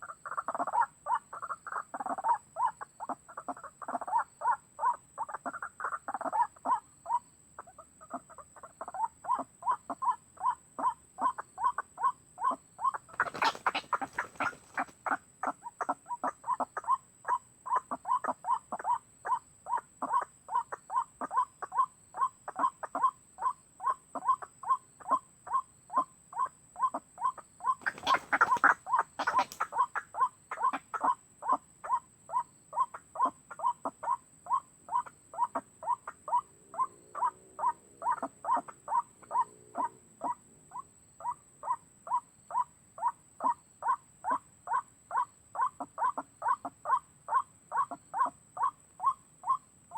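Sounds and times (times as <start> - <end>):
waterhen call: 12.4 - 17.0, 26.8 - 32.0.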